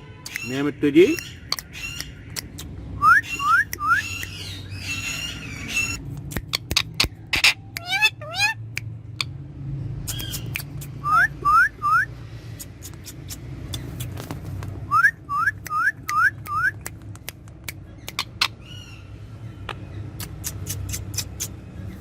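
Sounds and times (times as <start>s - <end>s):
harsh parakeet call: 3.0s - 6.0s, 6.6s - 8.7s
parakeet whistling rising notes: 3.0s - 6.0s, 11.0s - 12.1s
sharp clicks: 6.0s - 7.8s, 15.6s - 18.6s.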